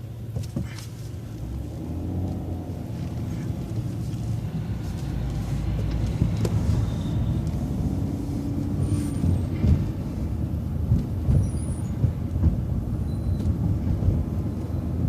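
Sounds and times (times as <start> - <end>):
bus engine and road rumble: 0.0 - 15.0
knocks and rattles: 9.4 - 10.2.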